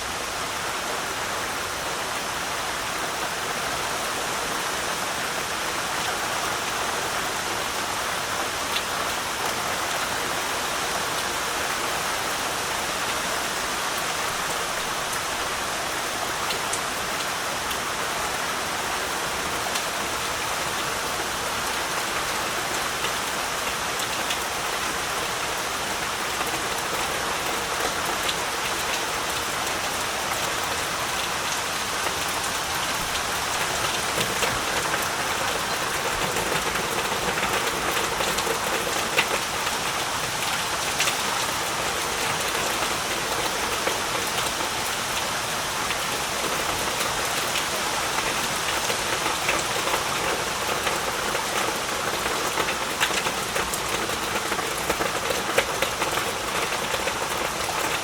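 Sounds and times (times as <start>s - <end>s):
heavy rain falling: 0.0s - 58.0s
raindrop splats: 32.0s - 58.0s.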